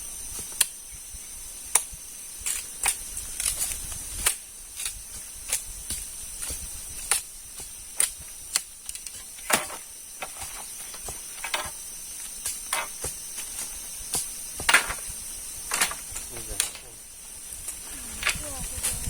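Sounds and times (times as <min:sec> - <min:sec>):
insects chirring: 0:00.0 - 0:19.0
sharp clicks and knocks: 0:08.0 - 0:11.8, 0:12.4 - 0:13.2, 0:14.1 - 0:15.1.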